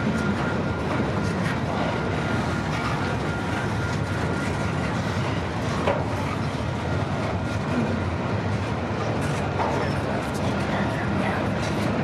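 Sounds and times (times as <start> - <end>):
freight train wheels rumbling on rails: 0.0 - 12.0.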